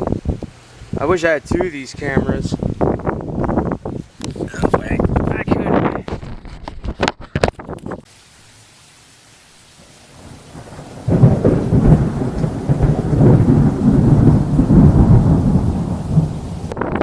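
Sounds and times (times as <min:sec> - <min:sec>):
thunder rumbling: 0:09.7 - 0:17.0.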